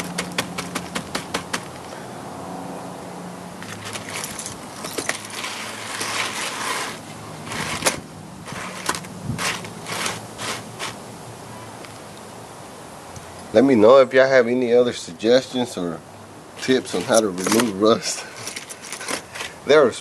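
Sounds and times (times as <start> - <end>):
metal chain clicking: 3.6 - 5.8
chain scraping and rattling: 3.6 - 11.0, 16.6 - 19.6.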